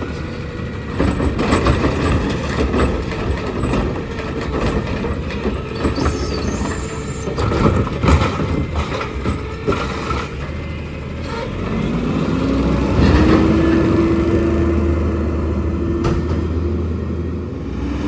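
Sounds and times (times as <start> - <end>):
garbage truck engine revving: 0.0 - 18.0
metal clanks and knocks: 0.2 - 10.6, 16.0 - 16.6.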